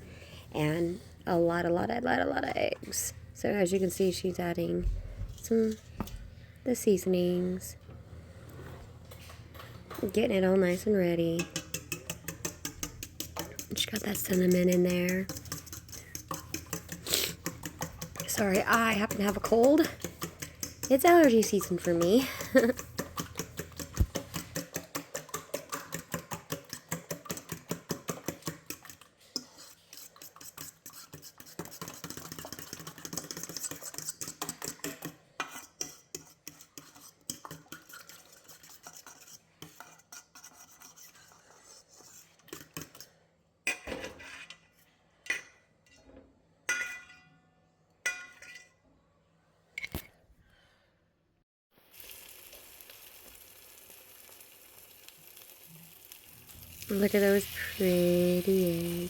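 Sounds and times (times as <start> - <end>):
whisk clinking against bowl: 11.3 - 43.1
frying sizzle: 51.7 - 59.0.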